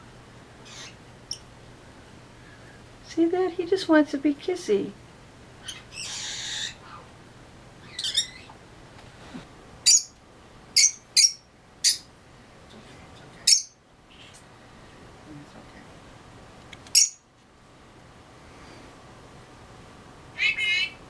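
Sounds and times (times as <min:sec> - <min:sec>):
parrot squawking: 0:00.6 - 0:01.4, 0:05.6 - 0:07.1, 0:07.8 - 0:08.5, 0:09.8 - 0:10.2, 0:10.8 - 0:12.1, 0:13.5 - 0:14.4, 0:16.9 - 0:17.2, 0:20.3 - 0:21.0
parrot hissing: 0:05.9 - 0:07.1.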